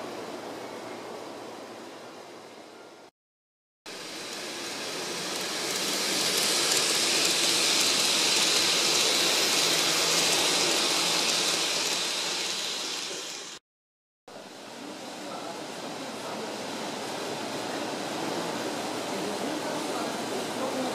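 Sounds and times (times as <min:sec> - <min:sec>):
model train motor whining: 0:03.9 - 0:13.6
wheels rushing on track: 0:03.9 - 0:13.6.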